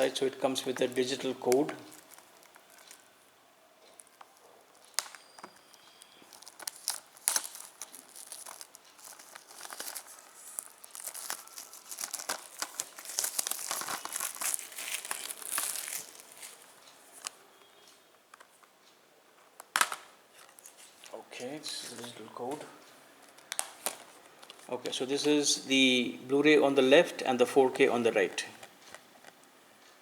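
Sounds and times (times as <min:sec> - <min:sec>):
packaging crinkling and rustling: 0:00.0 - 0:17.4, 0:19.7 - 0:22.1, 0:23.2 - 0:24.7.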